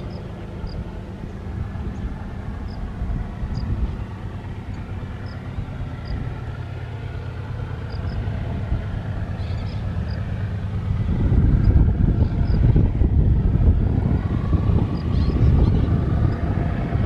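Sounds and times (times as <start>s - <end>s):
locomotive engine drone: 0.0s - 17.0s
rail rumble: 0.0s - 17.0s.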